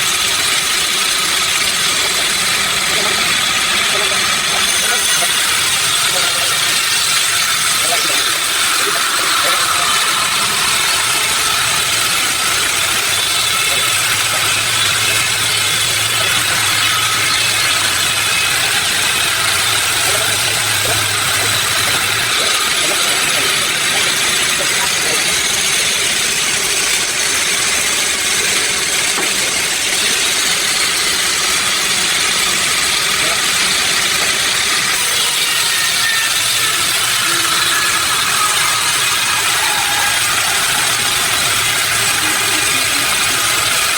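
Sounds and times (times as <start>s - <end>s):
sawmill machinery running: 0.0s - 43.9s
low hum: 5.4s - 28.6s.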